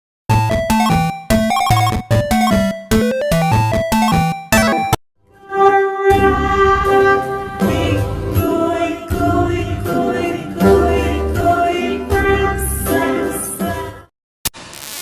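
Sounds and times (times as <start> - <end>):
voices singing children's song: 7.4 - 14.1.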